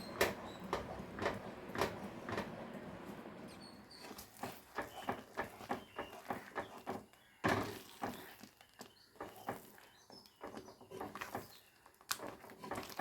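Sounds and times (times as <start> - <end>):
spoon scraping a pan: 3.9 - 13.0.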